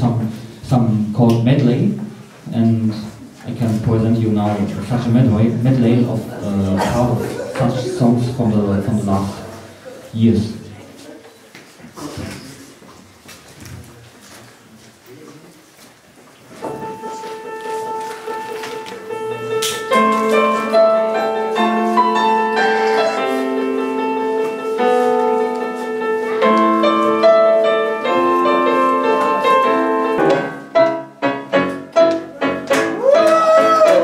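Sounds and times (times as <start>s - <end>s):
keyboard playing pop melody: 16.8s - 34.0s.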